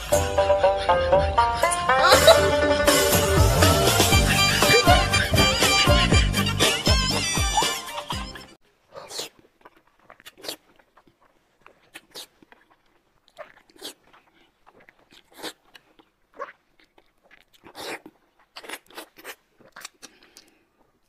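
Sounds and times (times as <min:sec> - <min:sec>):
crunchy bites and chewing: 0:08.9 - 0:21.0.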